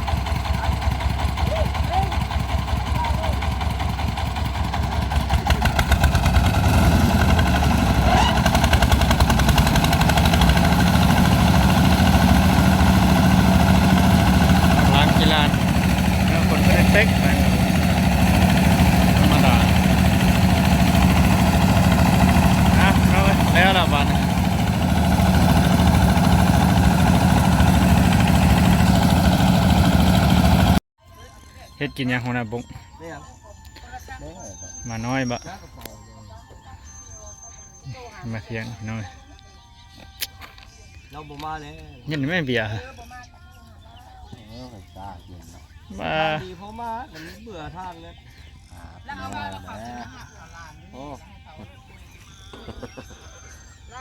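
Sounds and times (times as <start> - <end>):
engine running with fast pulsing: 0.0 - 30.8, 44.1 - 54.0.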